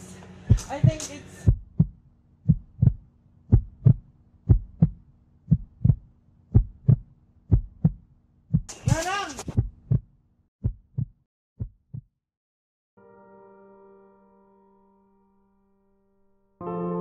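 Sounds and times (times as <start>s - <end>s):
heartbeat thumps: 0.5s - 12.1s.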